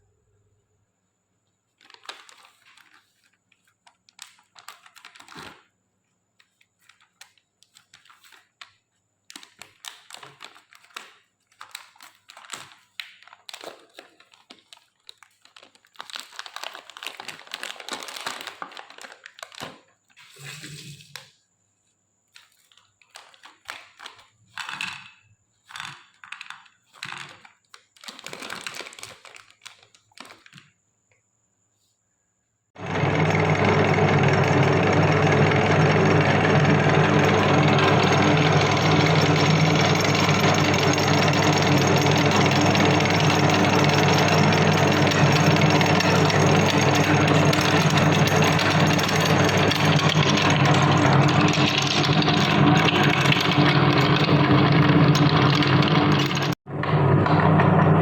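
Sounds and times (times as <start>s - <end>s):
plastic wrappers crinkling: 1.7s - 5.7s, 6.4s - 20.2s, 22.3s - 24.4s, 25.7s - 30.7s.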